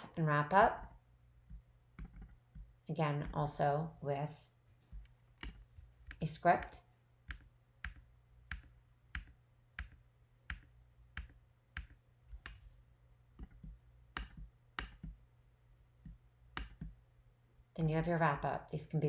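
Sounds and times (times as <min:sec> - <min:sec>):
computer mouse clicking: 0:05.0 - 0:06.7, 0:07.3 - 0:12.6, 0:13.4 - 0:15.2, 0:16.0 - 0:17.0.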